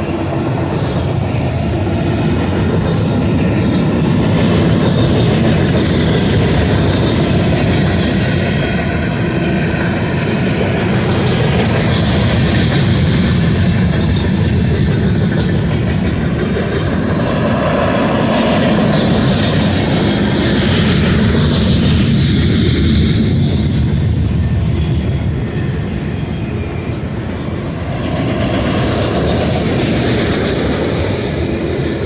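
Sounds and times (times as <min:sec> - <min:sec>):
train wheels on rails: 0:00.0 - 0:32.0.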